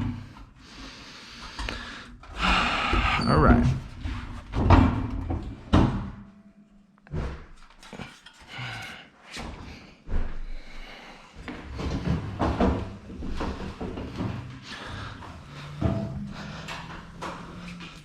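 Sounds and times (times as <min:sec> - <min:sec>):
metal scaffolding knocks and clanks: 0:03.0 - 0:09.6, 0:11.6 - 0:18.0.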